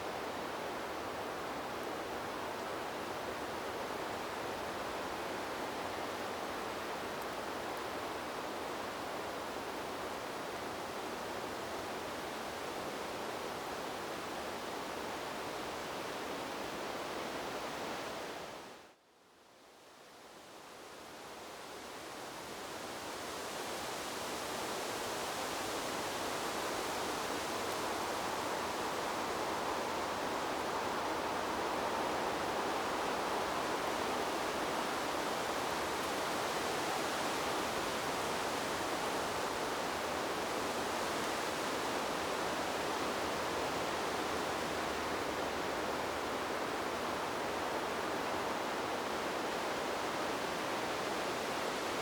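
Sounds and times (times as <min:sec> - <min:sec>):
wind rushing through trees: 0:00.0 - 0:52.0.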